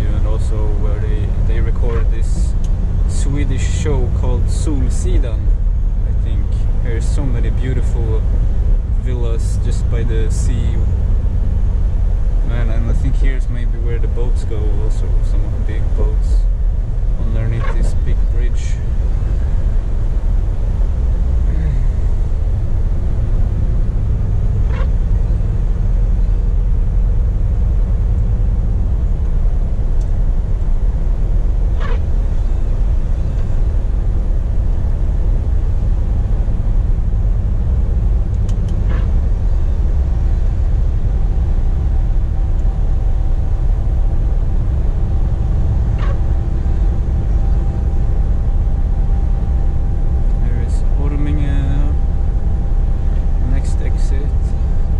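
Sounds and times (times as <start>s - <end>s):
truck engine and road rumble: 0.0s - 54.9s.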